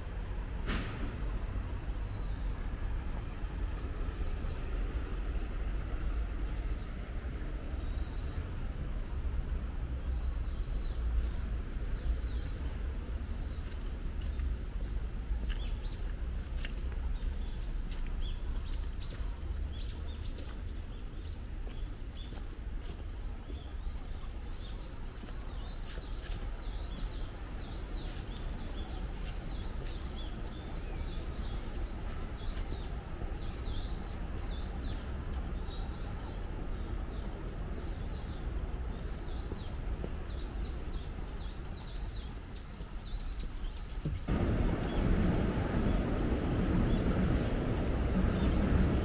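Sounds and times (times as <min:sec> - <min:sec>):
wind rumble on microphone: 0:00.0 - 0:49.0
birds chirping: 0:23.3 - 0:49.0.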